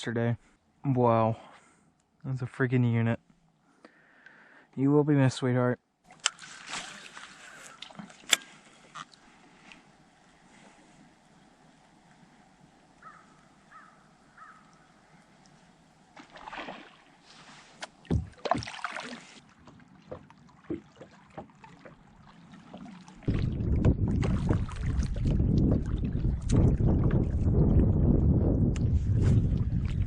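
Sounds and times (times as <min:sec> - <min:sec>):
water splashing: 0:06.1 - 0:10.5, 0:14.3 - 0:28.0, 0:29.1 - 0:30.0
knocks against kayak hull: 0:18.0 - 0:18.8
wind rumble on microphone: 0:23.2 - 0:30.0.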